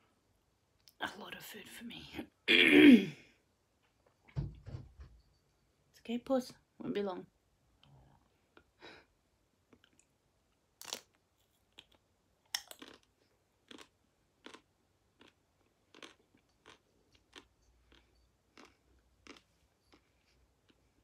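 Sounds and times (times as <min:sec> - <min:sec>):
crunchy chewing of ice cream bar: 0:10.8 - 0:21.0.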